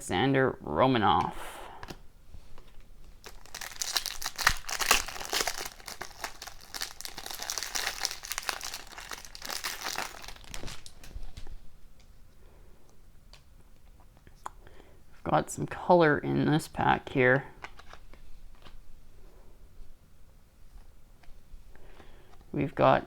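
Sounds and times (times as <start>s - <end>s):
wrapper tearing and crinkling: 3.0s - 11.5s.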